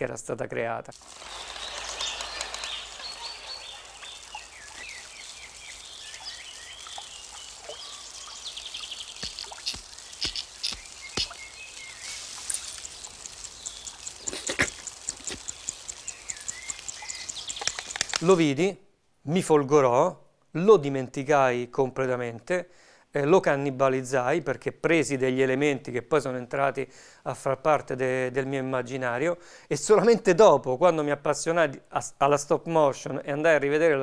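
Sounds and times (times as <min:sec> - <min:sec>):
steady hiss: 0:00.9 - 0:18.7
birds twittering: 0:01.1 - 0:18.4
sharp clicks: 0:09.1 - 0:18.4.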